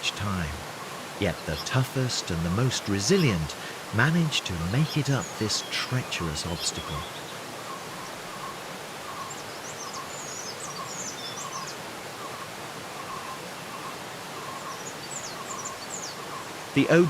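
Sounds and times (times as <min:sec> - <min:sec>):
waterfall rushing: 0:00.0 - 0:17.0
high bird chirps: 0:04.3 - 0:16.9.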